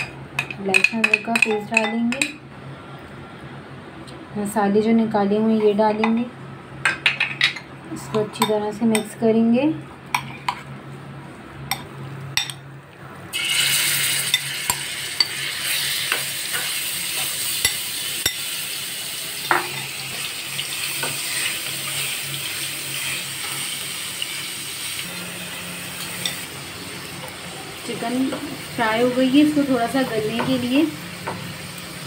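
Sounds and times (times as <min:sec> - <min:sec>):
chicken sizzling in hot oil: 0:13.3 - 0:32.0.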